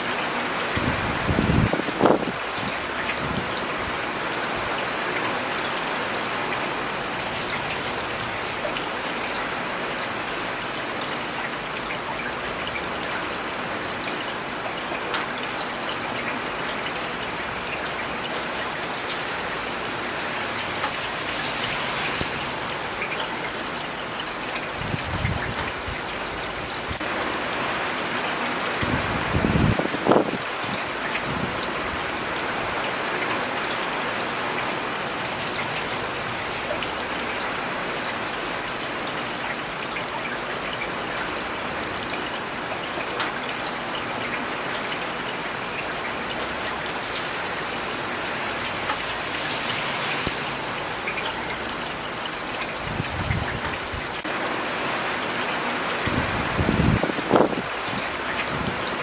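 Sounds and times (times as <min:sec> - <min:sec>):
rain hissing on surfaces: 0:00.0 - 0:59.0.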